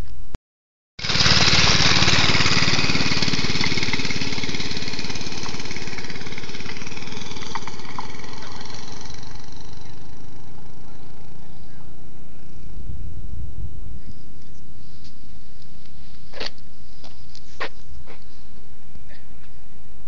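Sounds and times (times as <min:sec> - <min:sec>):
mini bike engine running: 0:01.0 - 0:11.9.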